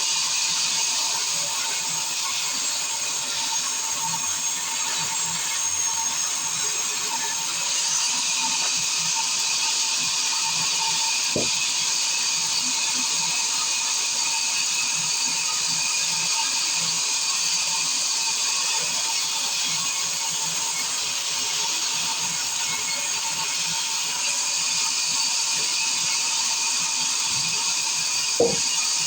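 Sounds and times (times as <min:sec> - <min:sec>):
circular saw whining: 0:01.0 - 0:13.1, 0:22.9 - 0:29.0.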